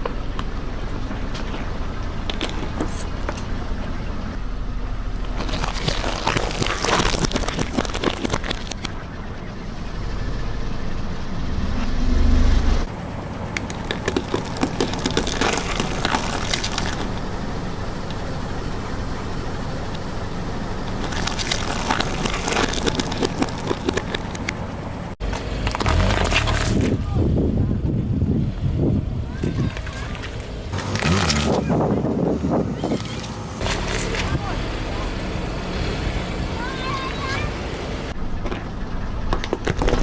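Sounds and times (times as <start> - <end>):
car engine humming: 0.0 - 6.0, 8.6 - 23.6, 24.6 - 38.9
loud low surge: 9.9 - 12.9
tyre crushing brittle objects: 25.3 - 27.0, 30.8 - 31.6.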